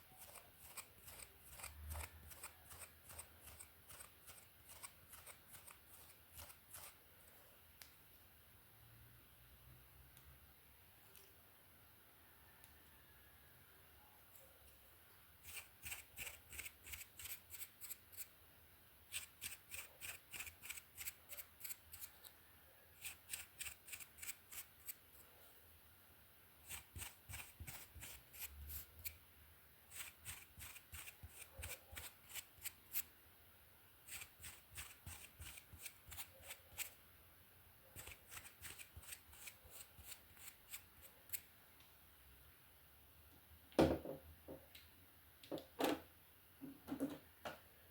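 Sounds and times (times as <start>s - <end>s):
hairbrush stroking through hair: 0.2s - 7.0s.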